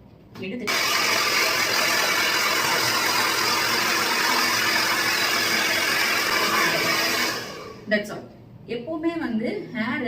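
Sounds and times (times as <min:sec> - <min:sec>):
hair dryer blowing: 0:00.7 - 0:07.9.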